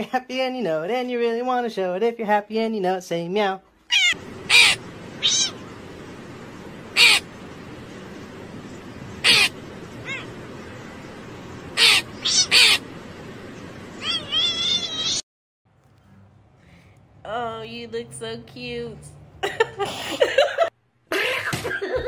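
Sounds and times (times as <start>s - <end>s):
cat meowing: 3.9s - 5.7s, 9.2s - 10.4s, 11.8s - 12.8s, 14.0s - 15.2s
crow cawing: 4.0s - 5.7s, 6.8s - 7.4s, 9.2s - 10.4s, 11.7s - 12.9s
background hiss: 4.2s - 15.2s.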